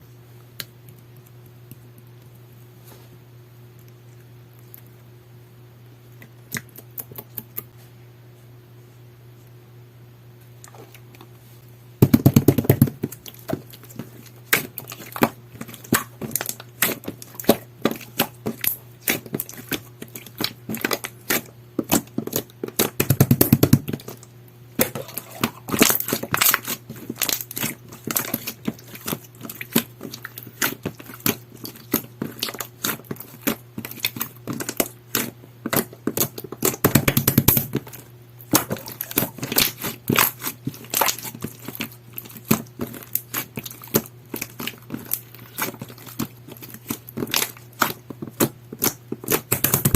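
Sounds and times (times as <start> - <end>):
slime squished by hand: 12.0 - 49.9
sticky clicks and pops: 47.2 - 49.9.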